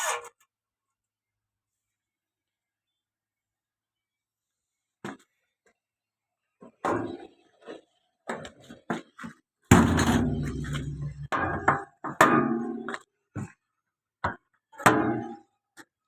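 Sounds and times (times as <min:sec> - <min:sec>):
knocks and clanks on metal: 0:09.7 - 0:13.5.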